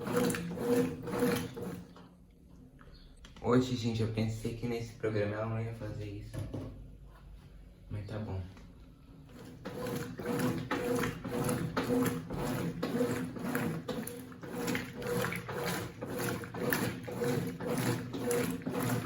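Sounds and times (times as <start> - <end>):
washing machine motor pulsing: 0.0 - 2.0, 9.2 - 19.0.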